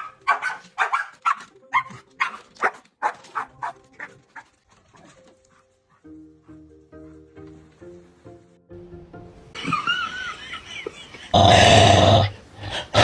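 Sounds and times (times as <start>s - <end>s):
dog barking excitedly: 0.0s - 5.2s.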